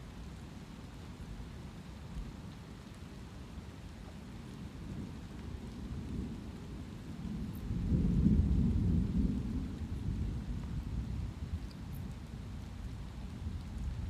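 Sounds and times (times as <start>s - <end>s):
light rain: 0.0s - 14.0s
rumble of thunder: 5.0s - 14.0s.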